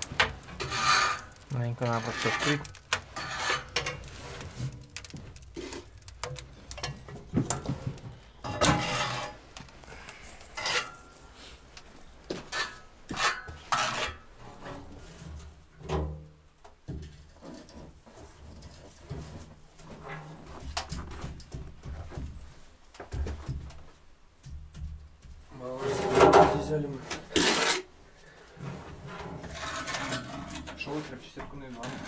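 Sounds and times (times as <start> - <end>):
metal objects clinking and clattering: 0.0 - 9.4.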